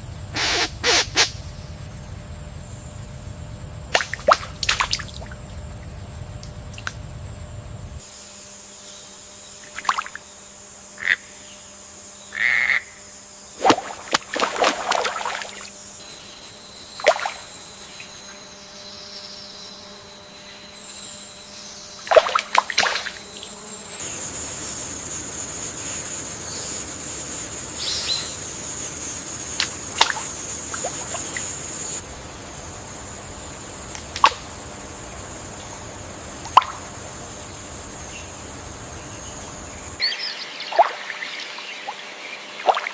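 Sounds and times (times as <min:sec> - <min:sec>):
high-pitched insect drone: 0:00.0 - 0:42.9
frog calls: 0:00.3 - 0:01.6, 0:11.0 - 0:11.5, 0:12.2 - 0:15.7, 0:27.8 - 0:32.0, 0:33.4 - 0:42.9
bird calls: 0:00.3 - 0:01.8, 0:36.6 - 0:42.9.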